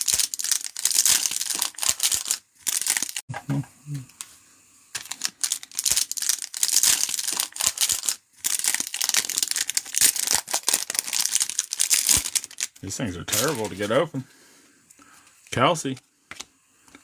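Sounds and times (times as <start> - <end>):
card pack wrappers crinkling and tearing: 0.0 - 3.2, 5.0 - 14.0.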